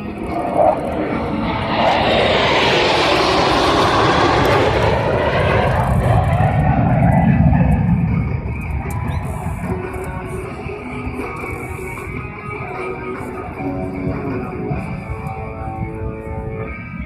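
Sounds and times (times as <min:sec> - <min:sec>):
fighter jet low pass: 0:00.0 - 0:12.3.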